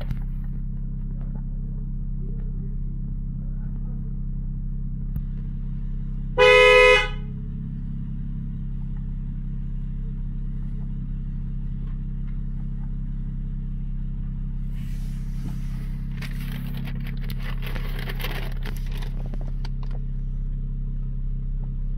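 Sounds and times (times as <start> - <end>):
car engine idling: 0.0 - 21.9
car horn beep: 6.4 - 7.3.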